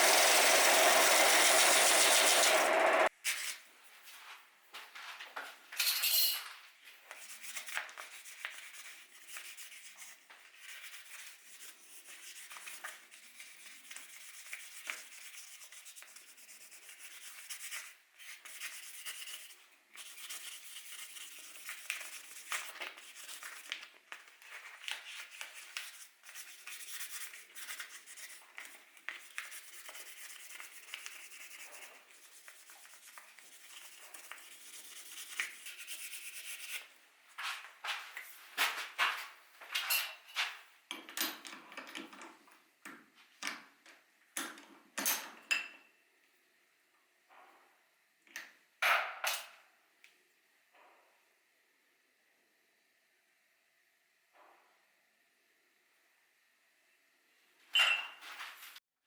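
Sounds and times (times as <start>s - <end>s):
hand sanding strokes: 0.0s - 3.1s, 7.2s - 23.7s, 25.0s - 36.9s.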